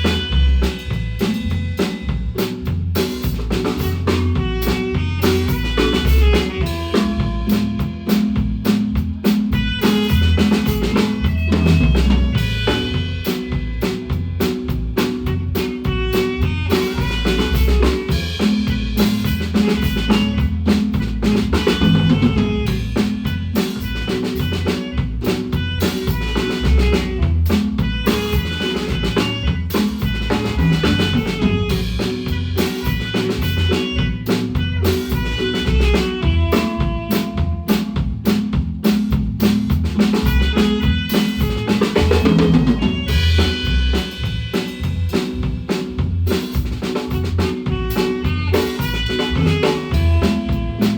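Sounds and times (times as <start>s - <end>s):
drum kit playing: 0.0s - 50.9s.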